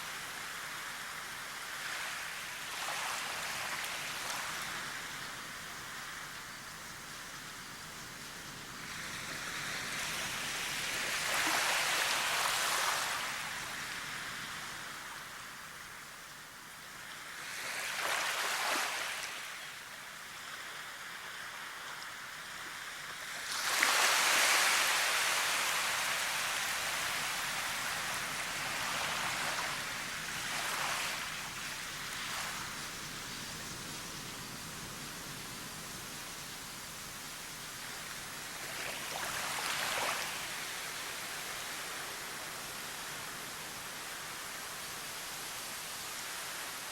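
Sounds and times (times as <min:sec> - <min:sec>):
surf washing in and out: 0:00.0 - 0:07.5, 0:08.6 - 0:46.9.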